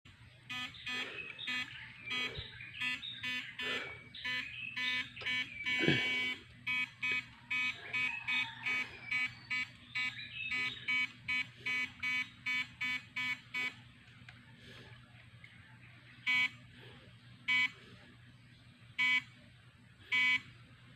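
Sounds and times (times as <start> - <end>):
electric fishing shocker buzzing: 0.5 - 13.8.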